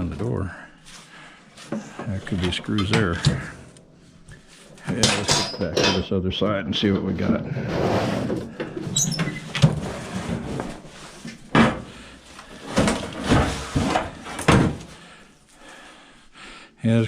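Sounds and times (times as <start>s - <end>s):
metal casing clunking and scraping: 1.5s - 15.1s.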